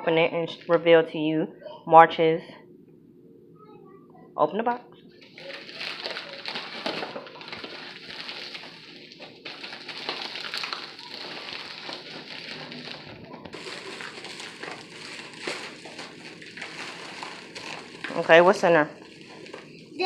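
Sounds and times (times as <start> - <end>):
packaging rustling and crinkling: 5.2 - 20.0.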